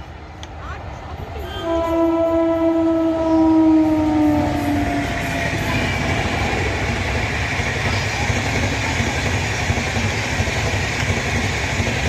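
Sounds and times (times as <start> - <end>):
train rushing past: 0.0 - 12.0
train horn: 1.4 - 7.0.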